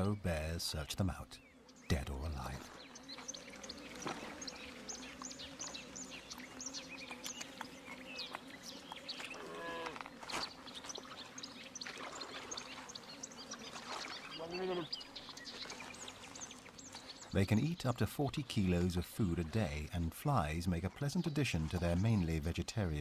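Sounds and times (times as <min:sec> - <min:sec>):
loud bird calls: 0:00.0 - 0:19.7
small birds chirping: 0:00.0 - 0:23.0.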